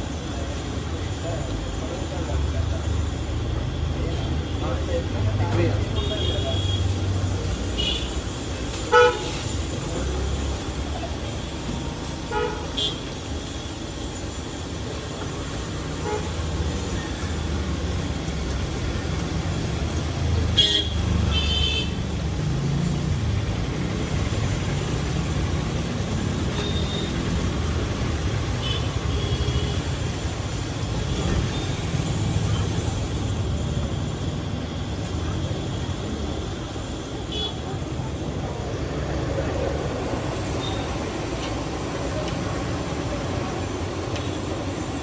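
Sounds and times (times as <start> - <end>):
traffic engine rumble: 0.0 - 45.0
vehicle horn toots: 20.6 - 21.9.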